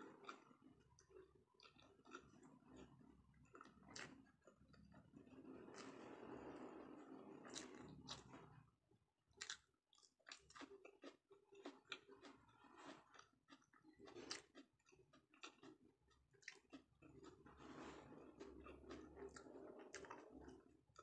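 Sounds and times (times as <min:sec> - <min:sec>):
person chewing sushi: 0:00.1 - 0:06.4, 0:07.4 - 0:08.3, 0:09.3 - 0:21.0.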